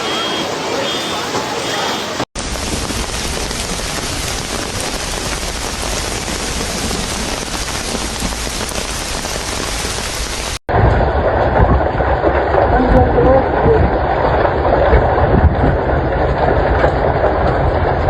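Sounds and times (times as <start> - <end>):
heavy rain on hard surfaces: 0.0 - 18.0
low rumble: 2.4 - 18.0.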